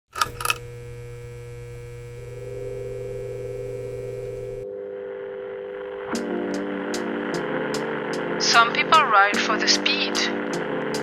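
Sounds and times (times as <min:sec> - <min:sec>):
low hum: 0:00.2 - 0:08.5
electronic drone of held tones: 0:00.2 - 0:11.0.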